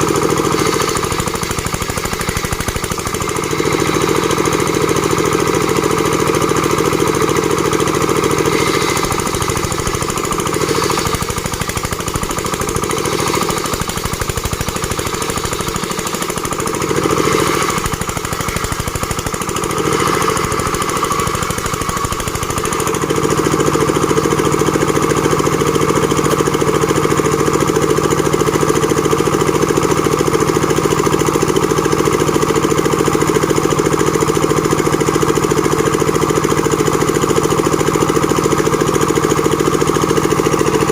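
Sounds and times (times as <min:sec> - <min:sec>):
machine running with fast pulse: 0:00.0 - 0:40.9.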